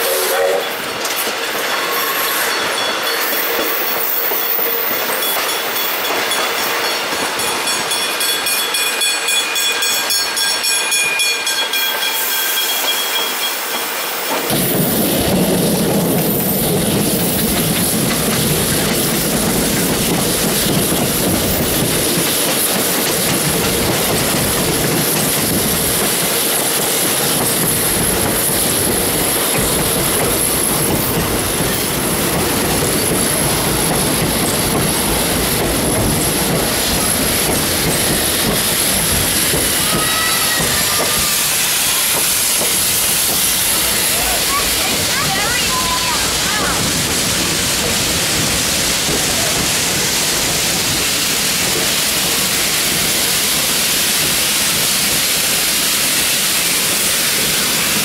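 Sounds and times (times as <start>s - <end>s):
train wheels squealing: 0.0s - 15.1s, 35.9s - 46.3s
clickety-clack of rails: 0.0s - 58.0s
deep train rumble with hiss: 0.0s - 58.0s.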